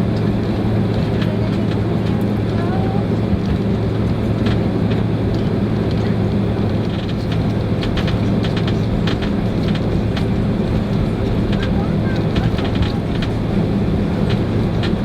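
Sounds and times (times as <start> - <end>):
airplane cabin engine hum: 0.0 - 15.0
light clicks and rattles: 4.4 - 15.0.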